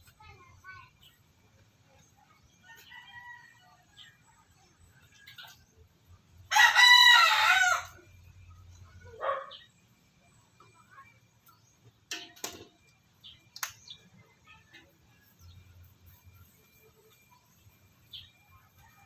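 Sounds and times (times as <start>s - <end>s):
rooster crowing: 6.5s - 8.1s.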